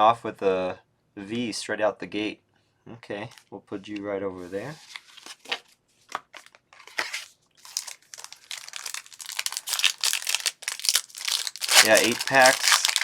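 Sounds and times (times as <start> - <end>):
foil wrapper crinkling and tearing: 6.4 - 13.0.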